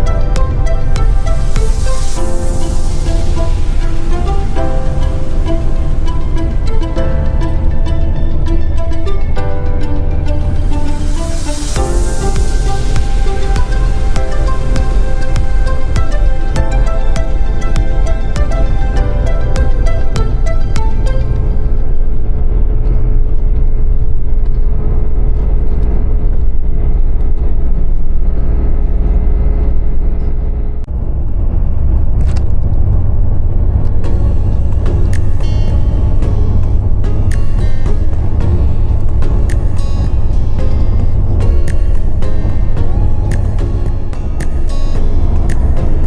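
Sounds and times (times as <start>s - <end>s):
melody of held and plucked notes: 0.0s - 22.2s
steady low rumble: 0.0s - 46.0s.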